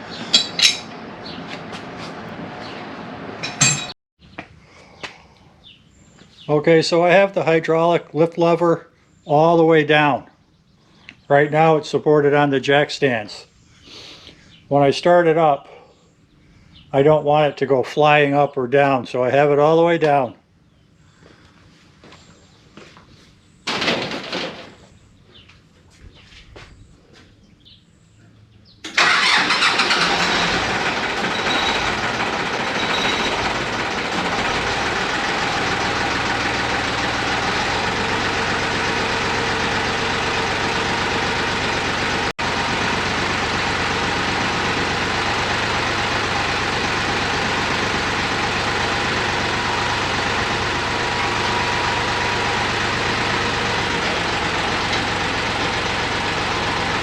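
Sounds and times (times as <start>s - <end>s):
tractor diesel engine starting and running: 0.0s - 4.0s, 28.8s - 57.0s.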